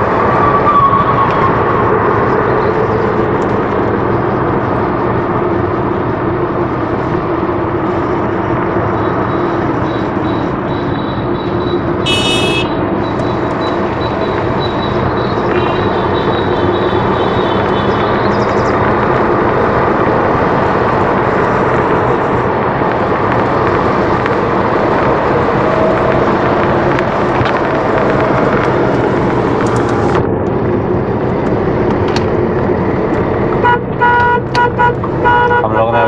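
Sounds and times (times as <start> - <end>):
vehicle driving rushing noise: 12.0 - 13.0.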